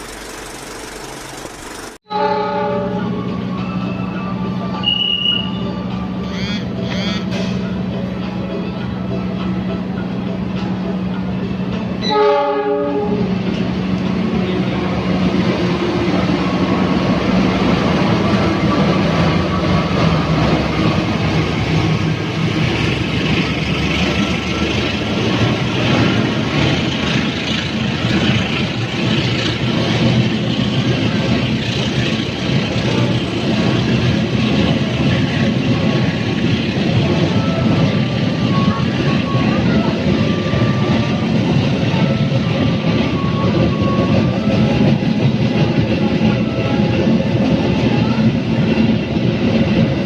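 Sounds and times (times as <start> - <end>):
train rumble: 0.0 - 50.0
train horn: 2.1 - 3.9, 4.8 - 7.5, 12.0 - 13.4, 37.3 - 48.3.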